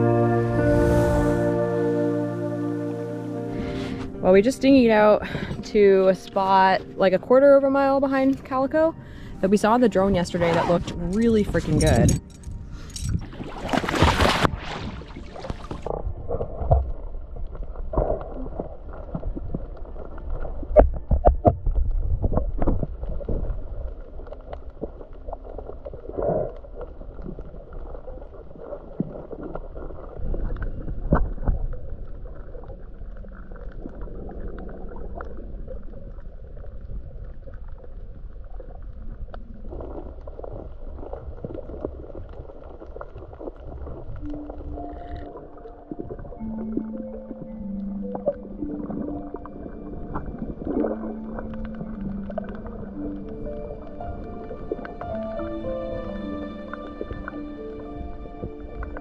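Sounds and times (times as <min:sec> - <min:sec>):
water splash: 0:00.0 - 0:04.3, 0:10.2 - 0:20.1
muffled underwater sloshing: 0:00.0 - 0:59.0
bubbling: 0:08.1 - 0:59.0.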